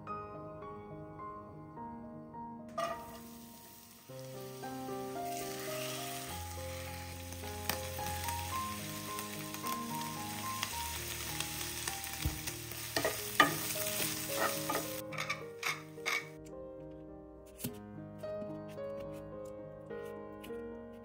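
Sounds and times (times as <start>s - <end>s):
soft background music: 0.0s - 21.0s
hot oil sizzling: 2.7s - 16.3s.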